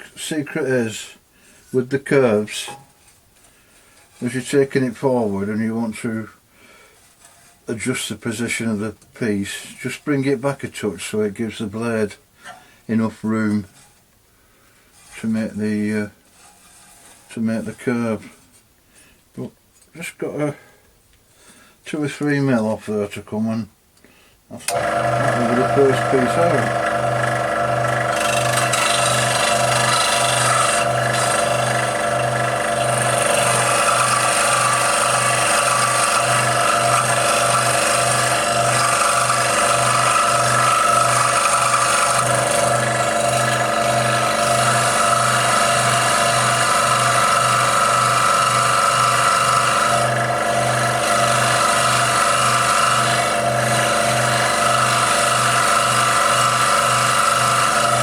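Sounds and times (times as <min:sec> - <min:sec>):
scroll saw cutting brass: 0:24.6 - 0:58.0.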